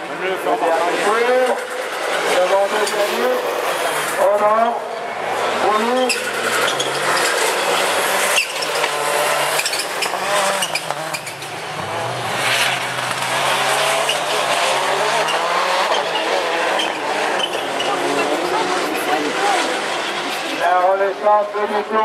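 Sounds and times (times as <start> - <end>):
race car engines revving: 0.0 - 22.0
tyre squeal: 5.7 - 18.6.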